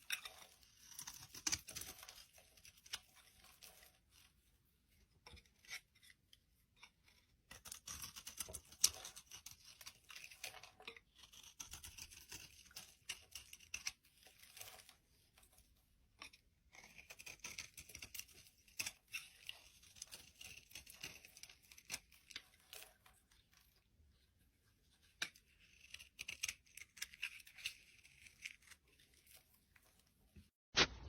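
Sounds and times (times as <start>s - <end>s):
crisp crackling and crunching: 0.0s - 4.3s, 25.0s - 31.0s.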